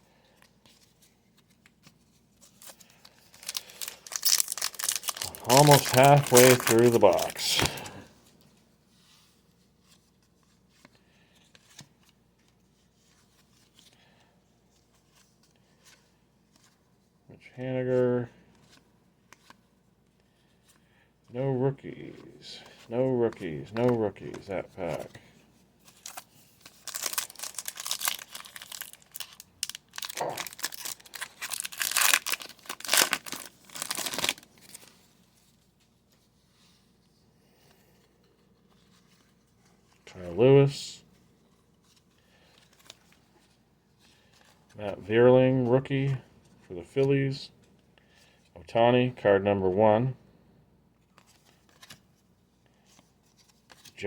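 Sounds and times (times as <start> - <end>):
wrapper tearing and crinkling: 2.6 - 8.0, 25.9 - 34.9.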